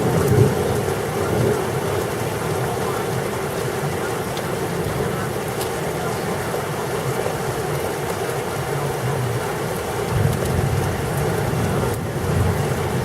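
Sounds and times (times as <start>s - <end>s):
steady rain: 0.0s - 13.0s
thunder rumbling: 10.1s - 13.0s.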